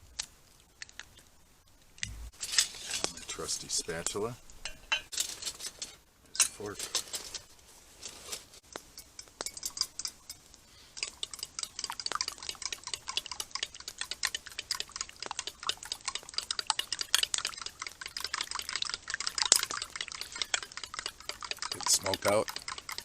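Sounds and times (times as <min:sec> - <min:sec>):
utensils clinking: 0:02.4 - 0:08.3, 0:08.9 - 0:11.9, 0:19.6 - 0:23.0
fork beating eggs: 0:08.8 - 0:23.0.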